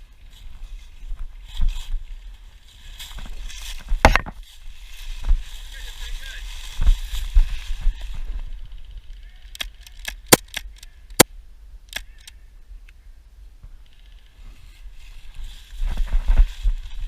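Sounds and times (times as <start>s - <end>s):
sharp clicks and snaps: 9.5s - 11.3s, 11.9s - 12.4s.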